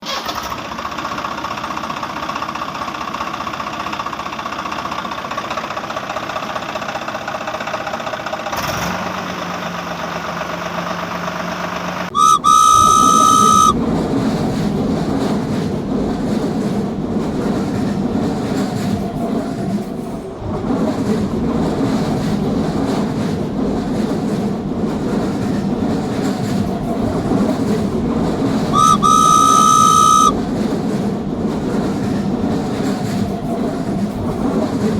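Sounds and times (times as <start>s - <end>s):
passing train rumble and clatter: 0.5s - 34.9s
train whistle blast: 12.1s - 13.8s, 28.7s - 30.4s
steady hum: 12.2s - 13.8s, 28.8s - 30.3s.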